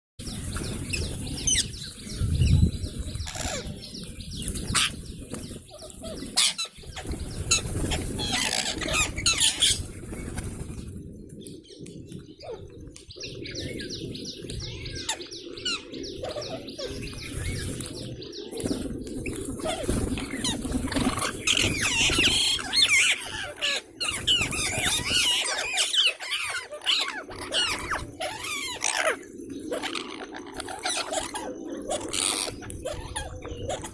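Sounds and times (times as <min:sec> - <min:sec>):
parrots chirping and squawking: 0:03.0 - 0:10.4, 0:14.8 - 0:17.9, 0:19.2 - 0:33.9.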